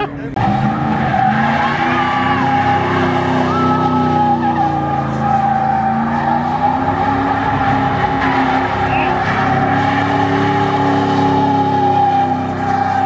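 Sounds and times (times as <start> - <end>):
car engine at high revs: 0.0 - 13.0
tyre squeal: 0.4 - 13.0
faint crowd shouts: 3.4 - 4.8.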